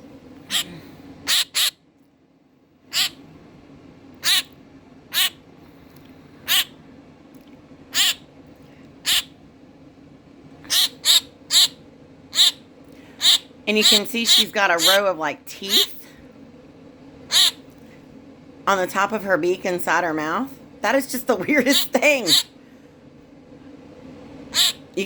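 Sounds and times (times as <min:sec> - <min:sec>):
baby bird squawking: 0:00.5 - 0:01.8, 0:02.9 - 0:03.2, 0:04.2 - 0:05.4, 0:06.4 - 0:06.8, 0:07.9 - 0:08.3, 0:09.0 - 0:09.4, 0:10.6 - 0:12.6, 0:13.2 - 0:16.0, 0:17.3 - 0:17.6, 0:21.8 - 0:22.5, 0:24.5 - 0:24.9.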